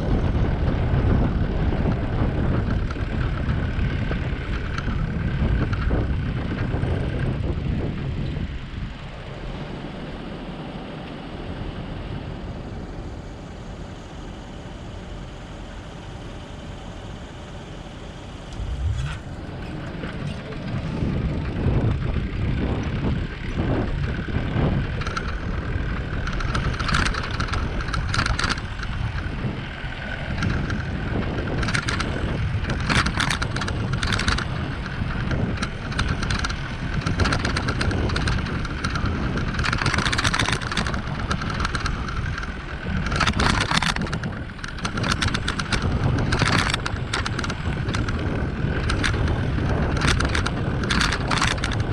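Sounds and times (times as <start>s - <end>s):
wind rushing over microphone: 0.0s - 14.9s, 18.2s - 51.9s
bicycle rattling clicks: 1.8s - 7.2s, 18.5s - 51.9s.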